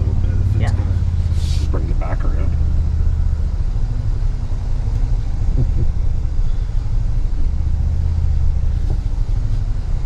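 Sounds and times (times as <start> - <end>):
truck engine low rumble: 0.0 - 10.0.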